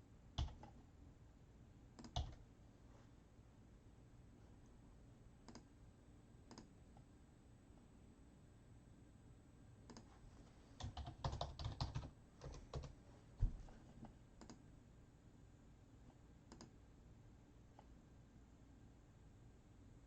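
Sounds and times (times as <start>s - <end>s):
computer keyboard typing: 0.4s - 0.8s, 2.0s - 2.4s, 10.8s - 13.0s.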